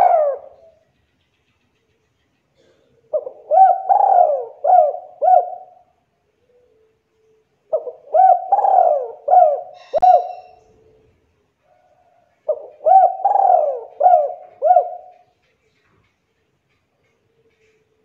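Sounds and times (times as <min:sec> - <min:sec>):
dove cooing: 0:00.0 - 0:00.8, 0:02.6 - 0:07.0, 0:07.6 - 0:11.2, 0:11.9 - 0:15.3.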